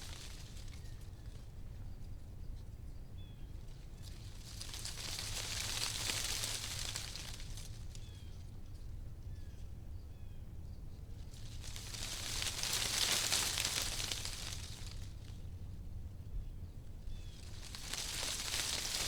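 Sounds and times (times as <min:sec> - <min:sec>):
wind rustling leaves: 0:00.0 - 0:01.6, 0:03.7 - 0:08.6, 0:11.1 - 0:15.9, 0:17.0 - 0:19.0.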